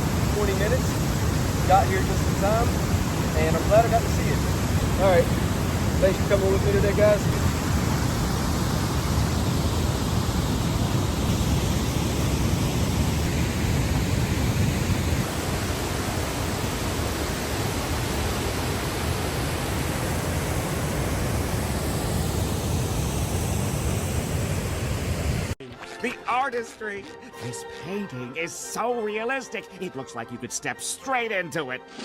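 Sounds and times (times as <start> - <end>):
waterfall roaring: 0.0 - 25.6.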